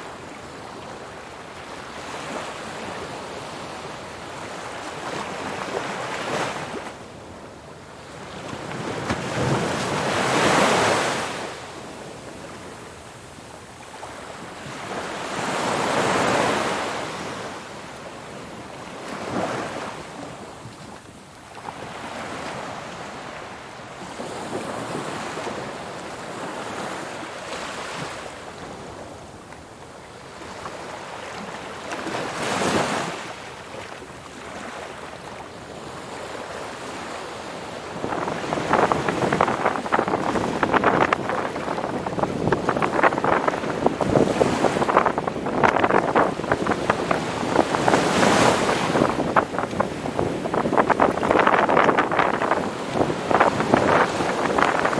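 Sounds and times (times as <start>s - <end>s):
ocean waves crashing on shore: 8.2s - 20.6s, 30.3s - 54.9s.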